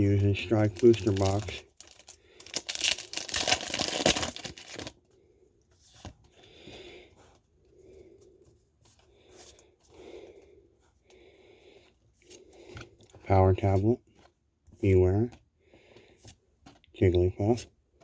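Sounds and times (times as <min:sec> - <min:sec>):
foil pack tearing and crinkling: 0:00.6 - 0:05.0
cards rustling and sliding: 0:00.7 - 0:04.9, 0:15.9 - 0:16.8.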